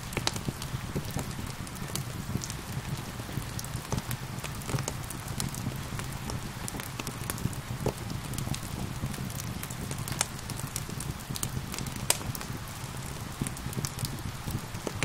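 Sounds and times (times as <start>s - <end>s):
gentle rain: 0.0s - 15.0s
wood fire crackling and popping: 0.0s - 15.0s.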